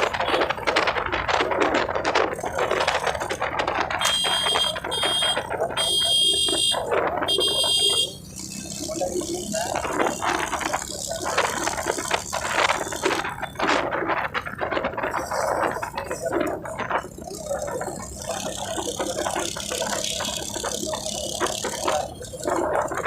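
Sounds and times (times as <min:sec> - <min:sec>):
rattling and clattering: 0:00.0 - 0:05.8, 0:08.2 - 0:23.0.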